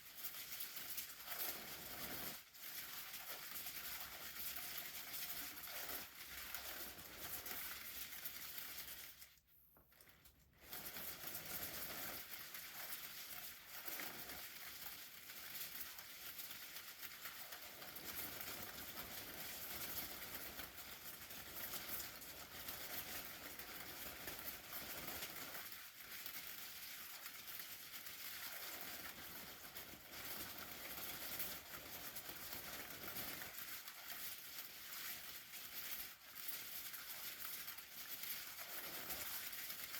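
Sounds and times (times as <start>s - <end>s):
umbrella crinkling and rustling: 0.0s - 39.9s.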